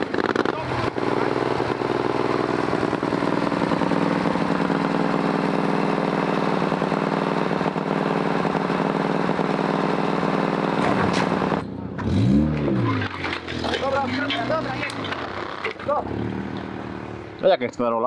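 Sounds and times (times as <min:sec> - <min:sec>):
off-road vehicle engine idling: 0:00.0 - 0:12.2.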